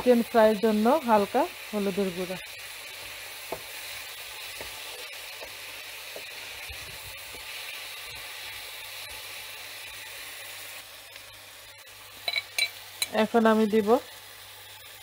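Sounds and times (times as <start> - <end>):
vegetables sizzling in a pan: 0.0 - 15.0
wooden spatula tapping and scraping: 3.4 - 3.8, 4.5 - 6.6.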